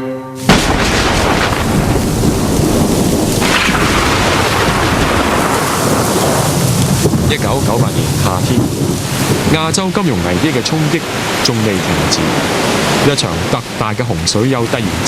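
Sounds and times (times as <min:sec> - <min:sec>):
thunder: 0:00.4 - 0:10.5
heavy rain pouring: 0:00.4 - 0:15.0.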